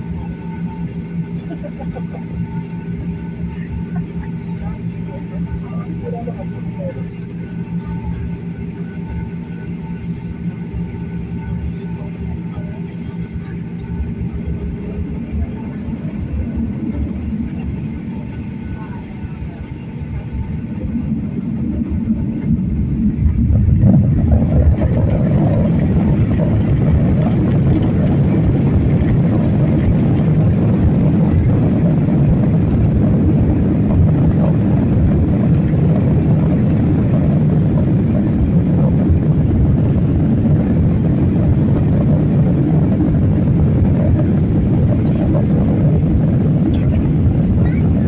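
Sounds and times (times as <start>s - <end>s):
airliner engines in cabin: 0.0s - 48.0s.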